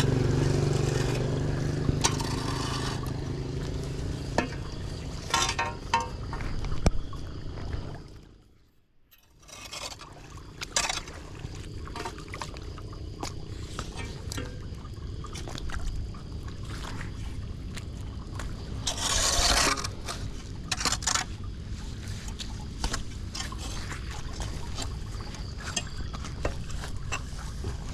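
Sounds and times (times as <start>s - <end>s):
debris scraping on grate: 2.0s - 3.2s, 4.3s - 6.2s, 9.1s - 11.2s, 18.9s - 21.3s.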